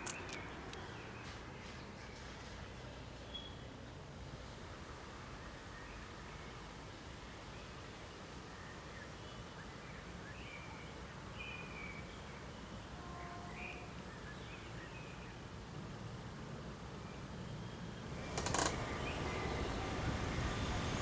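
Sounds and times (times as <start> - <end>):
low outdoor rumble: 18.0 - 21.0.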